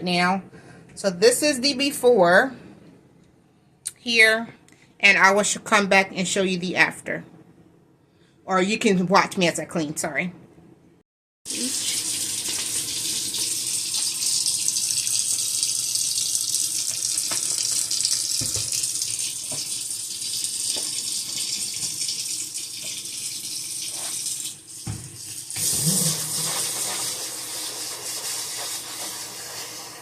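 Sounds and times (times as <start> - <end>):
faucet running into sink: 11.5 - 30.0.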